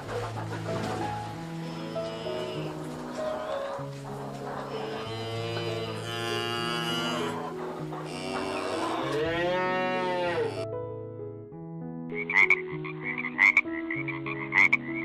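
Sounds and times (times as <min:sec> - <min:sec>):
background music: 0:00.0 - 0:15.0
cow mooing: 0:01.6 - 0:02.8, 0:04.6 - 0:10.6.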